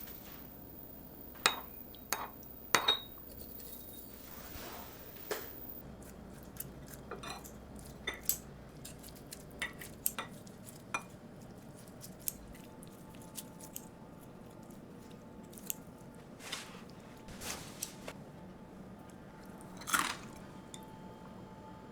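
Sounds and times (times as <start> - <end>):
utensils tapping dishes: 1.4 - 4.1.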